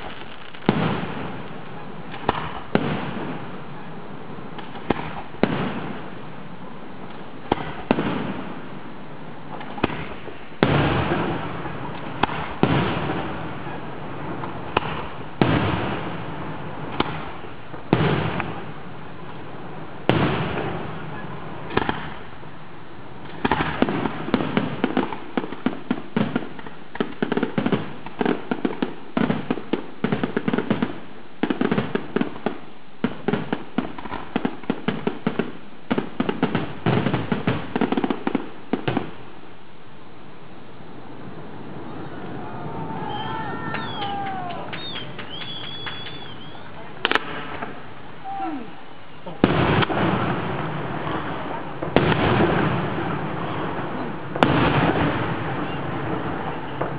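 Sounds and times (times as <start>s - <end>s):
fireworks bursting with loud bangs: 0.0s - 39.6s, 41.2s - 56.9s.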